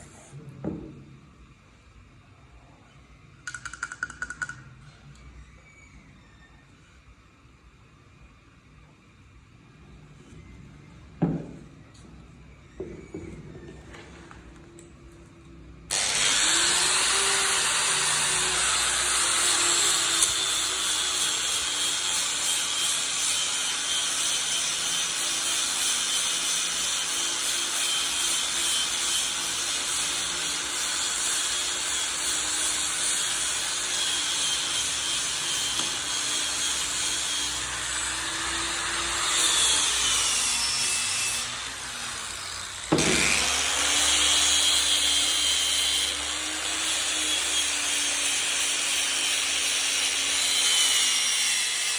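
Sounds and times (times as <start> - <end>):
power tool cutting wood: 15.9 - 51.9.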